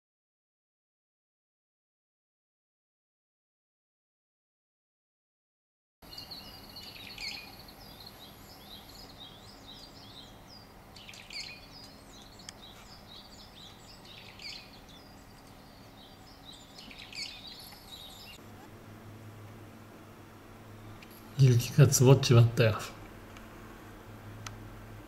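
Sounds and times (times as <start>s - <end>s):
small birds chirping: 6.0s - 18.8s.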